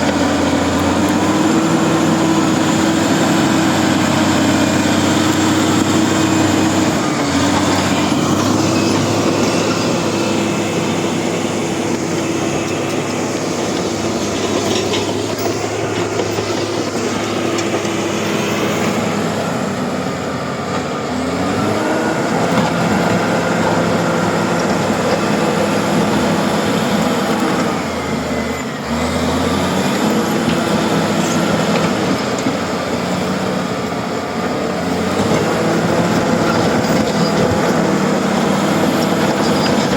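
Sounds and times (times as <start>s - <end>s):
crawler tracks clattering: 0.0s - 19.3s, 29.6s - 39.9s
bulldozer diesel engine under load: 0.0s - 39.9s.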